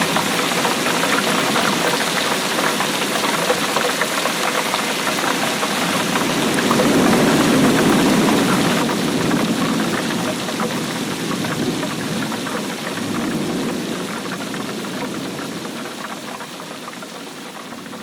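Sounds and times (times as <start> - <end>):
heavy rain pattering: 0.0 - 18.0
distant thunder rumble: 5.6 - 16.7.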